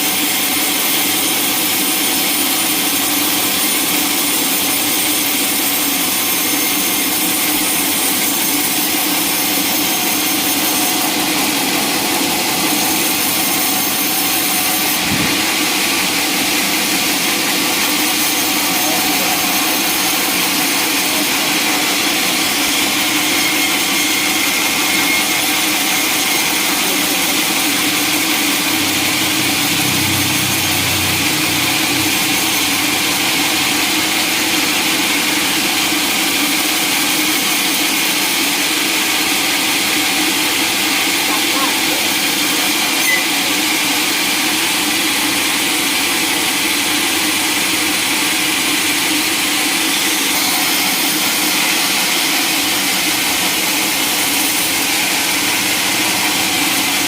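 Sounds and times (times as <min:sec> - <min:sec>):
sawmill saw cutting log: 0:00.0 - 0:57.0.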